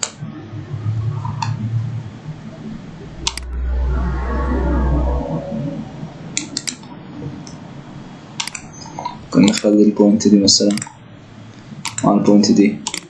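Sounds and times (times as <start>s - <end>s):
low rumble: 0.2s - 8.4s
computer mouse clicks: 8.4s - 9.7s, 10.6s - 11.0s, 11.8s - 12.1s.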